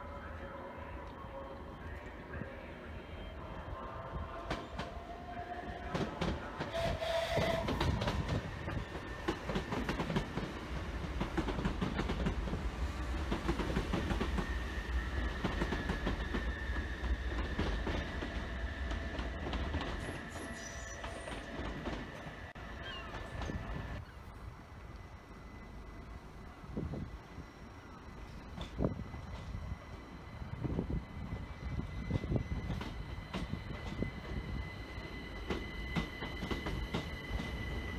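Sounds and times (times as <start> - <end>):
train rumble: 0.0 - 37.9
train wheels clicking over joints: 5.9 - 12.6, 32.0 - 37.9
steady high whine: 23.8 - 37.9.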